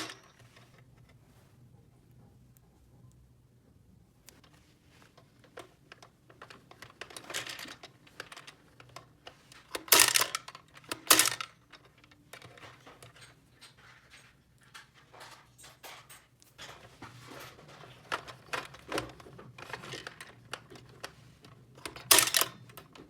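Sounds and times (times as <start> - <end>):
plastic toy pieces clicking: 6.4 - 13.3, 21.8 - 22.9.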